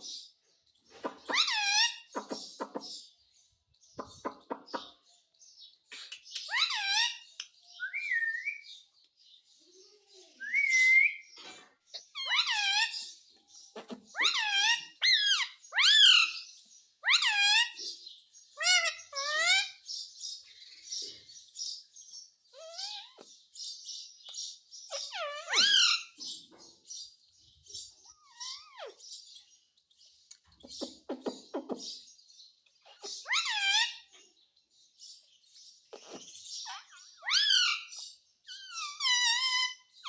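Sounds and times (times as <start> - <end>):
parrot calling and chattering: 0.9 - 3.1, 5.8 - 8.4, 11.9 - 17.8, 18.6 - 19.8, 22.5 - 23.3, 24.2 - 26.2, 27.8 - 29.2, 30.3 - 32.1, 32.7 - 34.2, 35.8 - 40.0.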